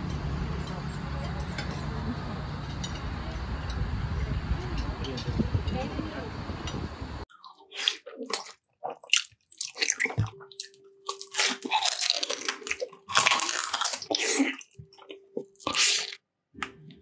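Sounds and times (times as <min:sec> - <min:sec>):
crunching and wet chewing of food: 0:07.3 - 0:16.8.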